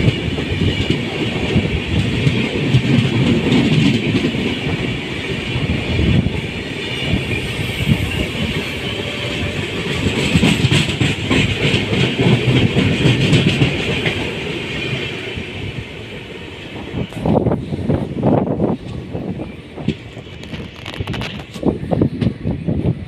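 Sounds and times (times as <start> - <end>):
wheels clacking over rail joints: 0.0 - 15.7
train rumble and hiss: 0.0 - 23.0.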